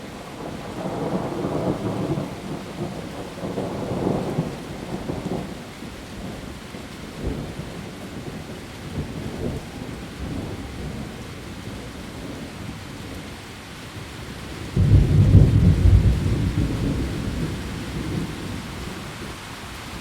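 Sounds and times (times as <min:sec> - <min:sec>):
heavy rain on leaves: 0:00.0 - 0:20.0
rolling thunder rumble: 0:00.3 - 0:06.5, 0:14.3 - 0:19.3.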